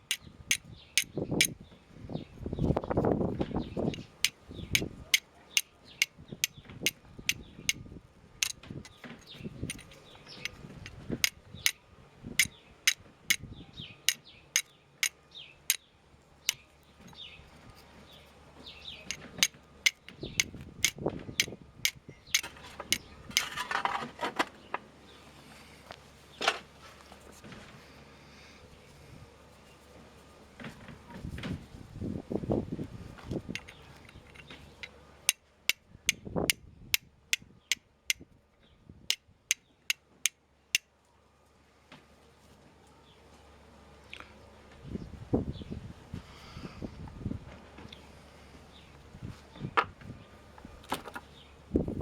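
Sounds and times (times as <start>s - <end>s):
flint and steel clicking: 0.1s - 1.6s, 3.9s - 6.6s, 8.4s - 11.8s, 14.1s - 15.8s, 19.1s - 23.5s, 33.5s - 34.9s.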